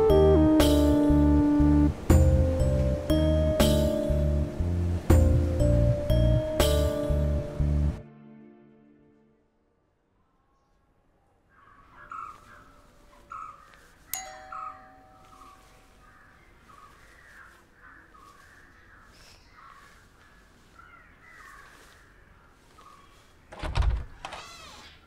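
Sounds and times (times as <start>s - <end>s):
birds calling: 11.5s - 25.0s.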